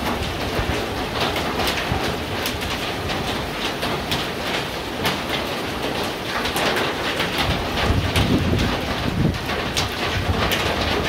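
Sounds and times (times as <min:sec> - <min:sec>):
heavy rain pouring: 0:00.0 - 0:11.0
raindrops ticking: 0:00.0 - 0:11.0
low thunder rumble: 0:07.4 - 0:11.0.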